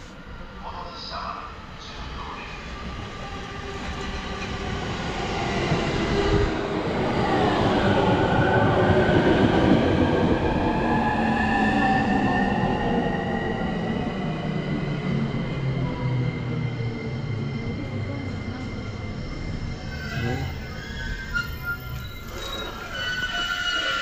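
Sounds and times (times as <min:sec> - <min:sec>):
electric whine of braking train: 0:10.1 - 0:24.0.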